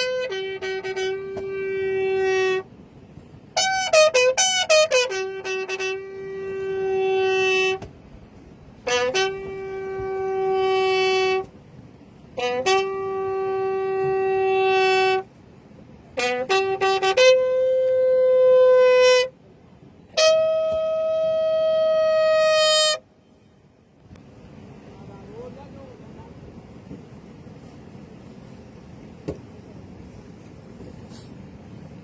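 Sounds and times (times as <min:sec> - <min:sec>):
wind instrument playing long notes: 0:00.0 - 0:23.2.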